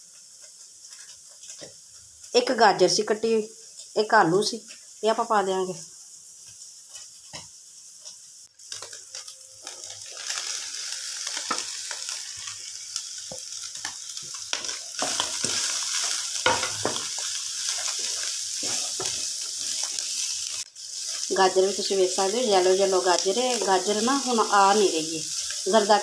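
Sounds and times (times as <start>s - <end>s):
vegetables sizzling in hot oil: 0.0s - 26.0s
wooden spatula scraping a pan: 14.6s - 21.3s.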